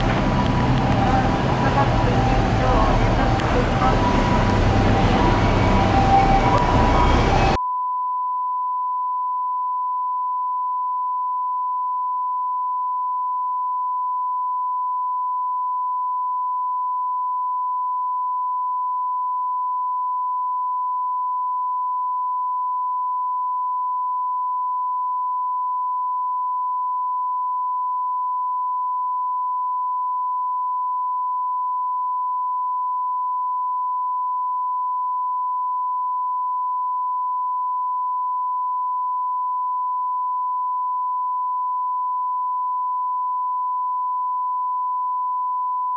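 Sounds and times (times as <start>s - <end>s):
bus cabin running noise: 0.0s - 7.6s
sine test tone: 0.0s - 45.9s.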